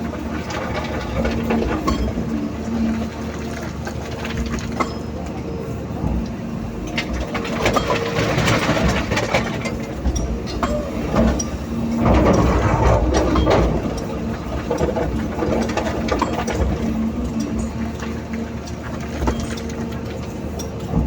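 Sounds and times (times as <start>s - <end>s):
diesel engine running: 0.0s - 21.0s
clanking and rattling knocks: 6.0s - 18.2s.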